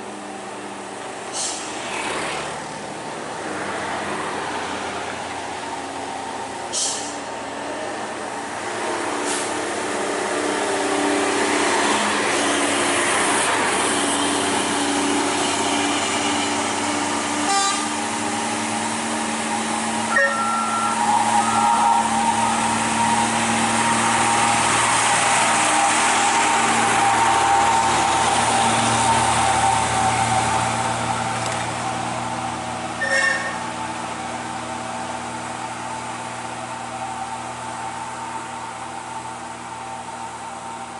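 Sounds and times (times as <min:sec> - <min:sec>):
truck engine droning: 0:00.0 - 0:40.9
short horn beeps: 0:20.1 - 0:22.0, 0:33.0 - 0:33.6.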